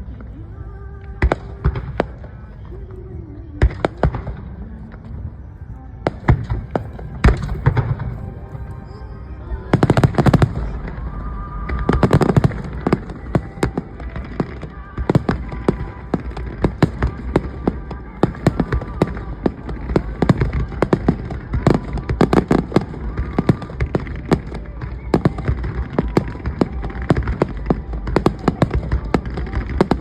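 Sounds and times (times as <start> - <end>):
fireworks bursting: 3.6 - 5.4, 6.0 - 30.0
fireworks crackling: 6.0 - 30.0.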